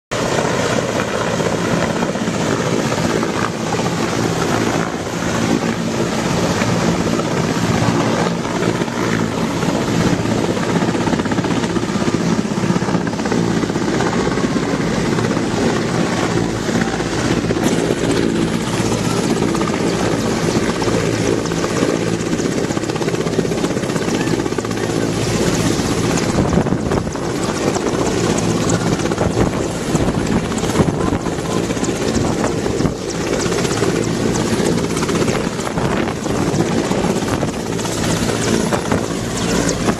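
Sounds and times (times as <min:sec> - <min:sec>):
helicopter engine drone: 0:00.1 - 0:39.9
helicopter rotor beating: 0:00.1 - 0:39.9.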